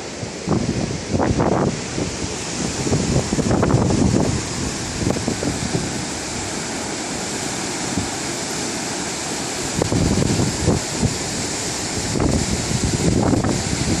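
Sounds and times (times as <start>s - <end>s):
wind buffeting microphone: 0.0s - 6.7s, 9.6s - 14.0s
ocean surf washing: 0.0s - 14.0s.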